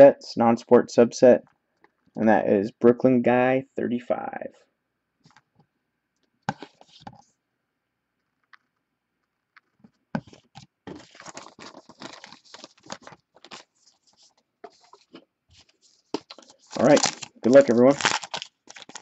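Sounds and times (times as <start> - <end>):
trading cards crinkling: 9.5 - 19.0.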